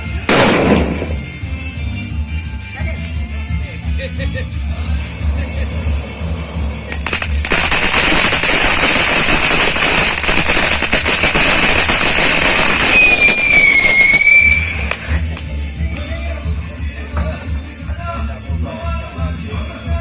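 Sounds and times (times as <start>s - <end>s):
firecrackers popping: 0.0s - 1.5s, 5.2s - 15.5s
shrill whistle: 12.8s - 14.9s.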